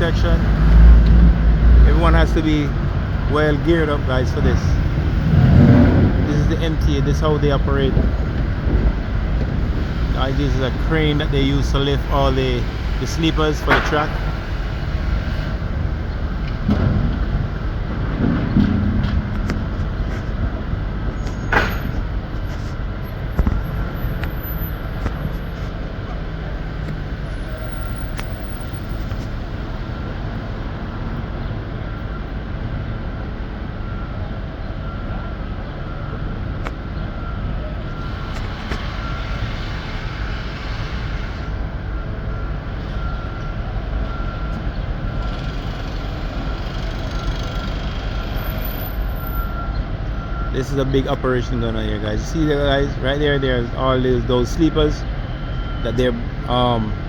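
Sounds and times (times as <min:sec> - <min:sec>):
crane engine running: 0:00.0 - 0:57.0
warning tone beeping: 0:49.2 - 0:57.0.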